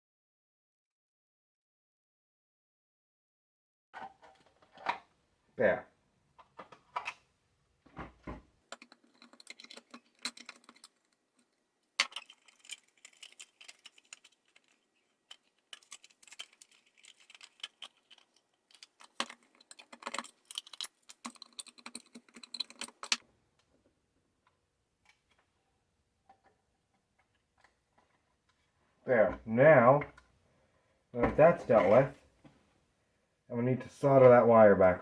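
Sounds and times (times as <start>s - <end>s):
small parts and tools rattling: 8.2s - 23.2s.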